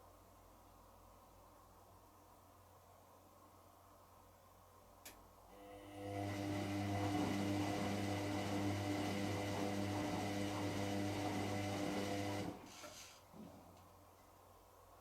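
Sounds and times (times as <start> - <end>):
washing machine humming: 5.6 - 12.9.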